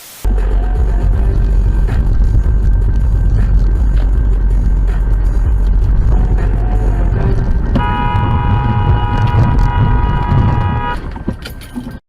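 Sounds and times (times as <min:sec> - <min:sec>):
road and engine rumble: 0:00.2 - 0:12.0
car horn held: 0:07.8 - 0:11.0.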